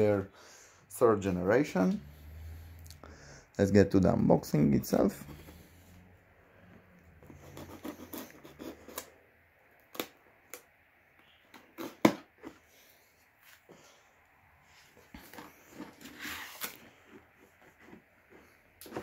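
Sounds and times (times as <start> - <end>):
cardboard packaging rustling: 14.9 - 19.0.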